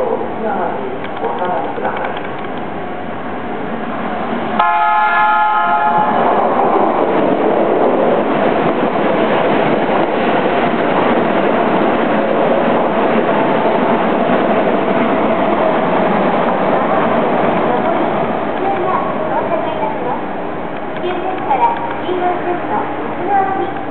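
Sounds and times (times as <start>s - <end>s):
train wheels and motors running: 0.0s - 4.6s, 5.3s - 23.9s
electric train horn: 4.6s - 6.2s.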